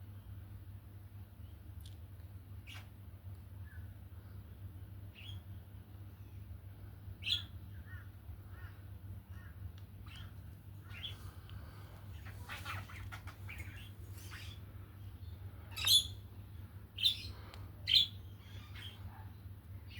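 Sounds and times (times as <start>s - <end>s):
birds chirping and squawking: 2.6s - 2.9s, 5.1s - 5.5s, 7.2s - 19.9s.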